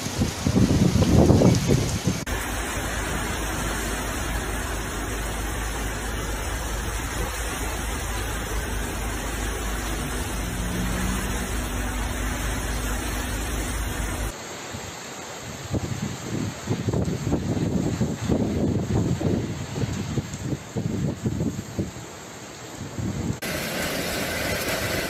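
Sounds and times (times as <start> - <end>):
heavy rain on pavement: 0.0 - 25.0
faint traffic engine hum: 2.3 - 14.3.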